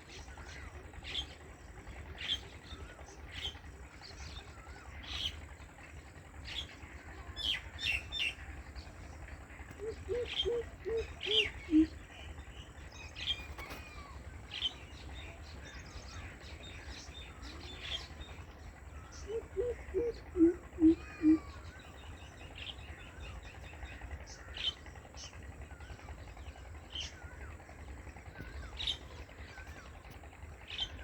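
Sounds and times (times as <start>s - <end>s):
deep hooting bird calls: 6.5s - 31.0s.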